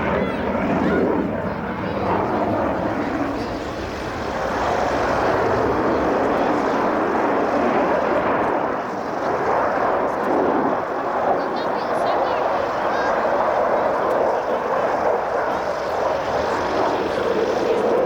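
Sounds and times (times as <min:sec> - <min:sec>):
aircraft engine rushing: 0:00.0 - 0:18.0.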